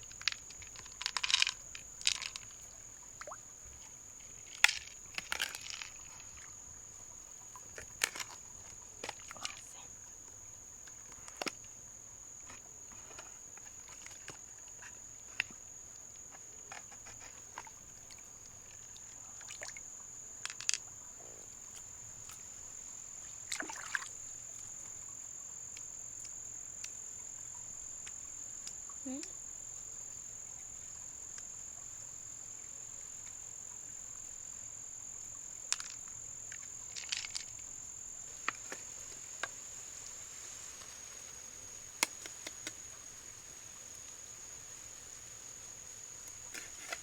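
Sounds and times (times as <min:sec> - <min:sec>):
small clicks and knocks: 0:00.0 - 0:02.6, 0:04.5 - 0:06.2, 0:07.8 - 0:08.4, 0:20.4 - 0:20.8, 0:42.0 - 0:42.8, 0:46.5 - 0:47.0.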